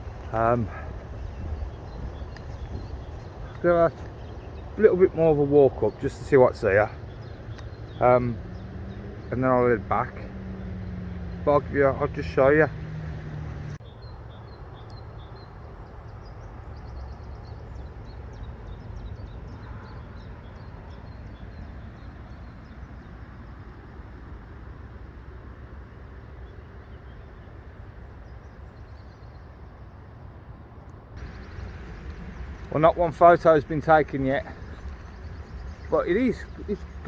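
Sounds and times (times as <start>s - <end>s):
small birds calling: 0.0s - 23.8s, 31.2s - 37.0s.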